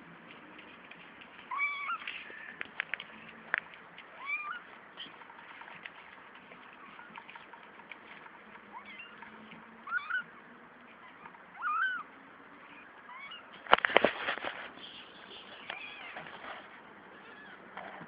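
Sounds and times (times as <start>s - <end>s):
kittens mewing: 8.7s - 13.6s, 14.8s - 17.8s.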